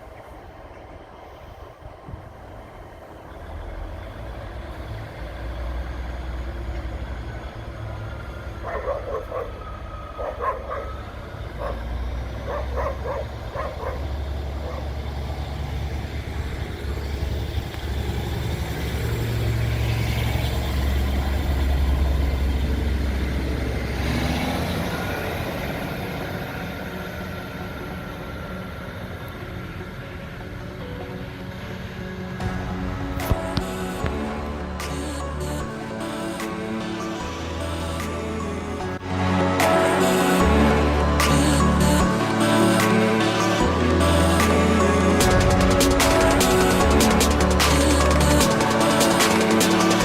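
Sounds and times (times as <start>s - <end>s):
train diesel engines rumbling: 0.0s - 50.0s.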